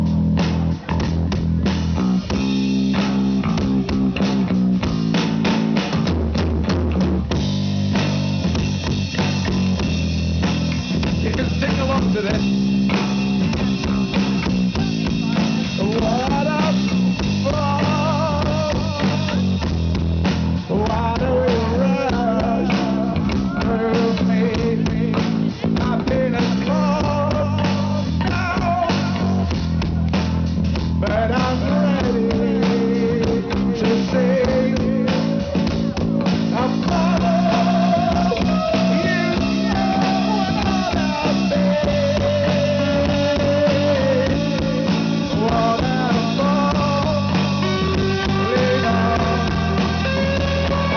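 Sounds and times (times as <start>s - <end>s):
droning bass guitars: 0.0s - 50.9s
drum kit beat: 0.0s - 50.9s
rock band playing: 0.0s - 50.9s
person singing: 13.4s - 19.7s, 20.6s - 30.2s, 31.0s - 50.9s.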